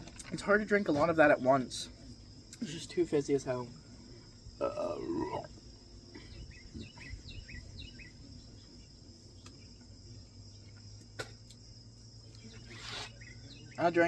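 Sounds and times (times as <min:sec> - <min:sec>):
sharp click: 0:11.1 - 0:11.6.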